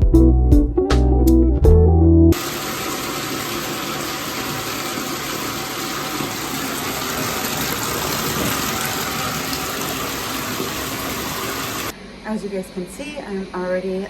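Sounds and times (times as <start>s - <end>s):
shower water spray: 2.4s - 11.9s.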